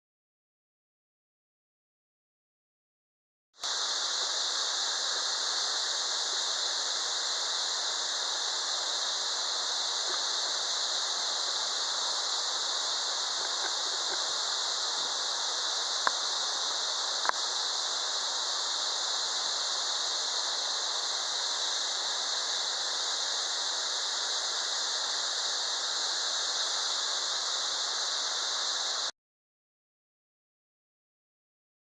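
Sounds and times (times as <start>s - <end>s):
waterfall rushing: 3.6s - 29.1s
faint clicks: 17.2s - 17.4s.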